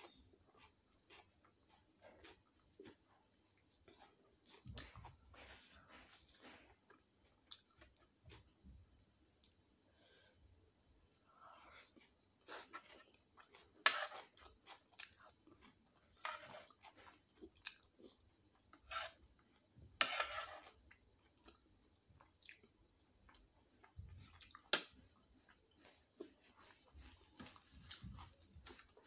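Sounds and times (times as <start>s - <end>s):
person chewing and biting food: 26.6s - 29.0s.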